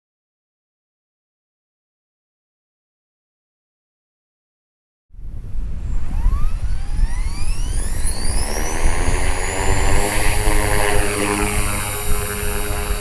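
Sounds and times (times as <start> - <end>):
rc helicopter motor whine: 5.8 - 13.0.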